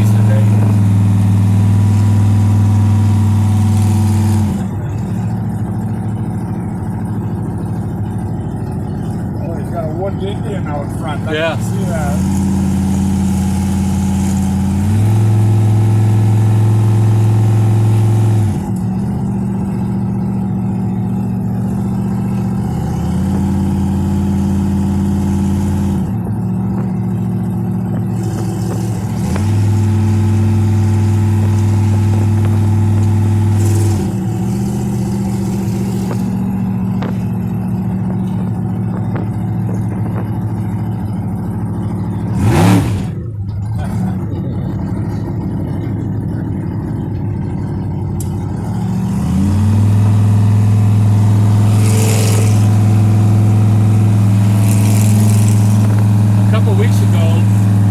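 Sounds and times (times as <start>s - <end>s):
car engine while driving: 0.0s - 57.9s.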